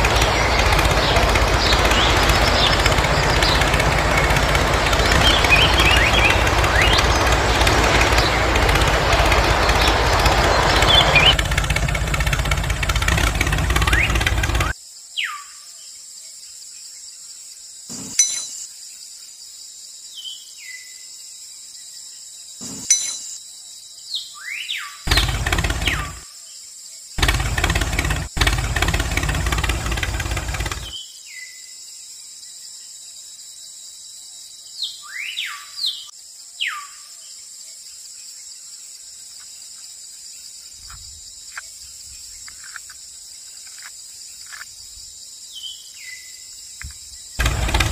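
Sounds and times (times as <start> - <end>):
birds chirping: 0.0 - 14.7, 25.1 - 26.2, 27.2 - 31.0, 45.6 - 47.9
small toy tractor motor running: 0.0 - 14.8, 25.1 - 26.2, 27.2 - 30.9, 47.4 - 47.9.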